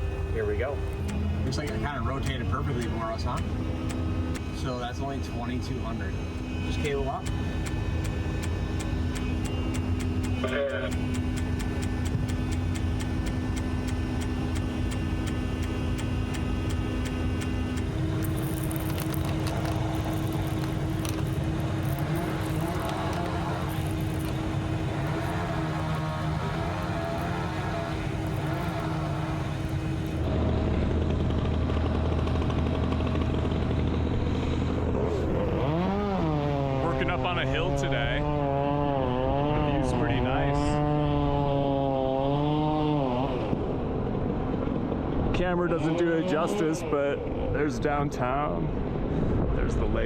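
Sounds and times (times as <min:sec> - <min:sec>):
hydraulic whine: 0:00.0 - 0:45.0
crane engine drone: 0:00.0 - 0:50.0
winch ticking: 0:00.7 - 0:04.6, 0:07.2 - 0:30.3.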